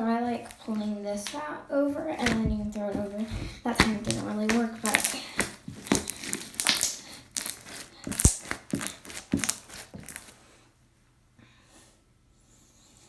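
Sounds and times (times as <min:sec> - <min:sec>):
slime crackling and popping: 0:02.2 - 0:10.3.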